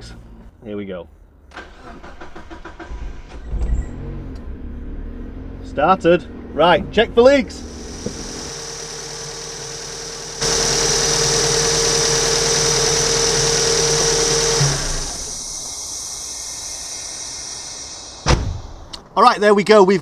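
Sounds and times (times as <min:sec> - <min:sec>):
car engine idling: 0:05.5 - 0:18.9.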